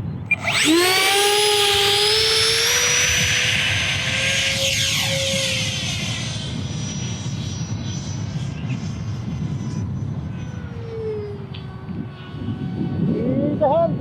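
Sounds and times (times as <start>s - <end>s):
rc jet fan whine: 0.0s - 14.0s
wind rumble on microphone: 5.0s - 14.0s.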